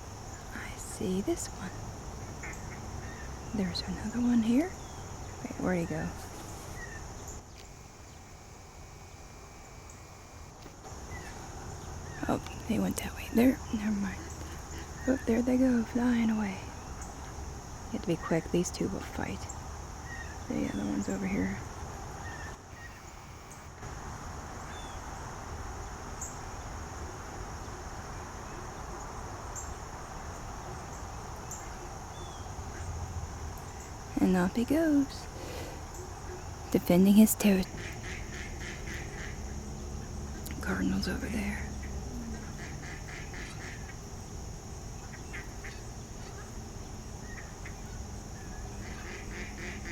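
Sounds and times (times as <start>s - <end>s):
insect chorus drone: 0.0s - 49.9s
duck quacks: 37.8s - 39.4s, 42.3s - 44.0s, 48.8s - 49.9s.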